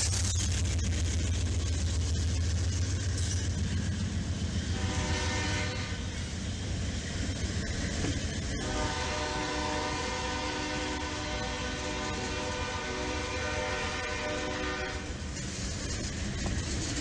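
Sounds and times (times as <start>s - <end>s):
diesel locomotive engines droning: 0.0s - 17.0s
train horn chord: 4.7s - 6.0s, 8.6s - 15.2s.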